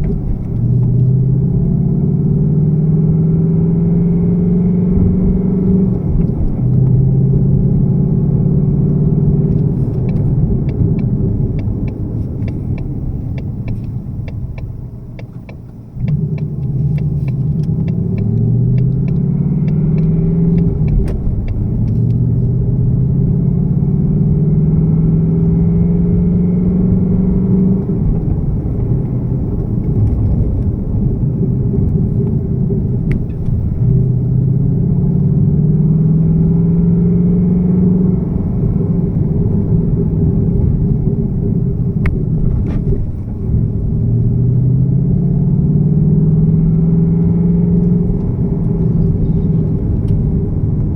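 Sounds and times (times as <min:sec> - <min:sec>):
car engine idling: 0:05.0 - 0:24.2.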